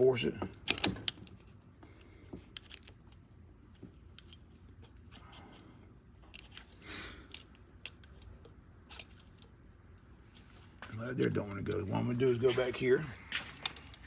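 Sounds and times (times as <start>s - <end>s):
screwdriver clicking and scraping metal: 0.6s - 5.6s, 6.2s - 9.6s.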